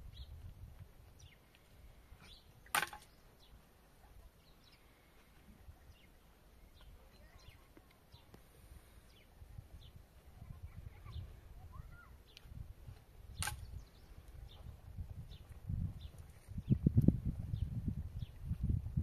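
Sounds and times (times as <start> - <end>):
small birds chirping: 0.0 - 18.8
sharp click: 13.4 - 13.8.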